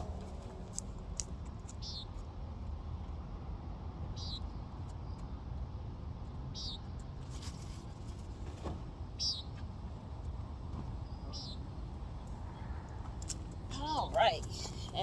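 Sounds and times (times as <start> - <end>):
low steady rumble: 0.0 - 15.0
bird chirping: 1.6 - 2.2, 4.1 - 5.4, 6.5 - 7.0, 9.2 - 9.6, 11.0 - 12.8
rustle: 6.6 - 11.6.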